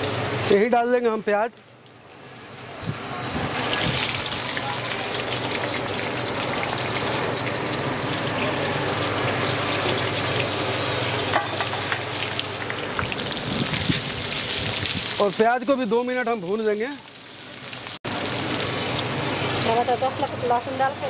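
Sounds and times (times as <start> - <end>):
onions sizzling in hot oil: 2.1 - 21.0.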